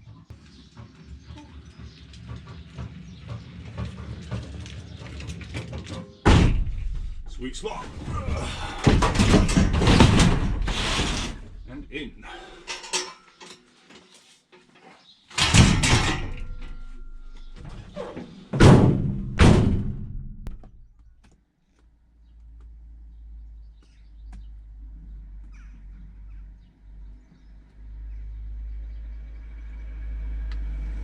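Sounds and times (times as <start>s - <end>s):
van engine rumbling: 0.0s - 12.9s, 15.4s - 21.2s, 22.1s - 31.0s
heavy thunk: 6.3s - 7.3s, 8.0s - 11.6s, 18.5s - 20.7s
van doors slamming: 6.3s - 11.8s, 15.4s - 20.6s.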